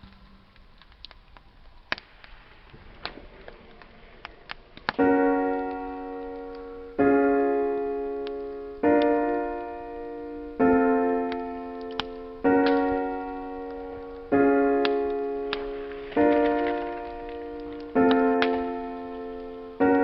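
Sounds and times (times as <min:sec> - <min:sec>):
wood fire crackling: 0:00.0 - 0:20.0
slow piano chords: 0:04.8 - 0:20.0.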